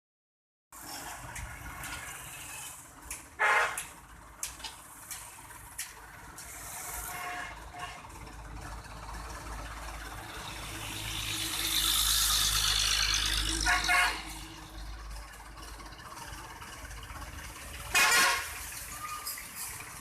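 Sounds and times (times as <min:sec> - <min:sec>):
low rumble of vehicles: 0:00.8 - 0:20.0
loud horn beep: 0:03.4 - 0:03.8, 0:13.6 - 0:14.4, 0:17.9 - 0:19.3.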